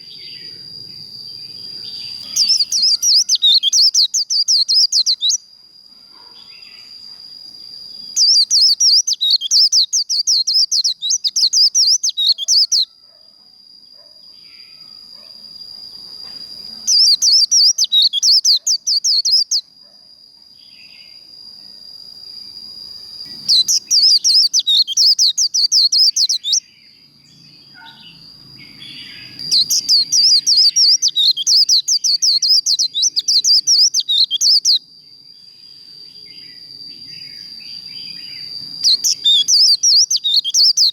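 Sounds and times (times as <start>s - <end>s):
bird twittering song: 0.0s - 5.5s, 7.9s - 12.9s, 16.0s - 19.7s, 23.0s - 34.8s, 35.5s - 40.9s.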